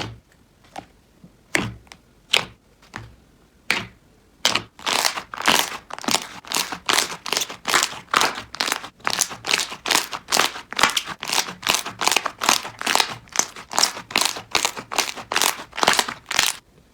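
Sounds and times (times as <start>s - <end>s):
slime squishing: 3.7s - 16.6s.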